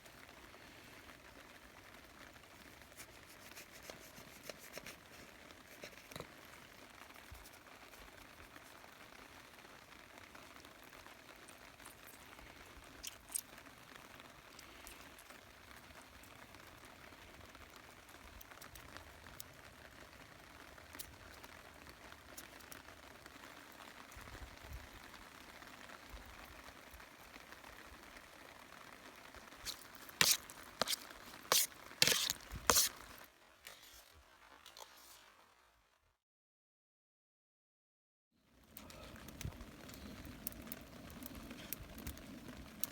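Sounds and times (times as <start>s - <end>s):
faint drips: 0.0s - 24.3s, 38.7s - 42.9s
rain pattering: 0.0s - 36.0s, 38.4s - 42.9s.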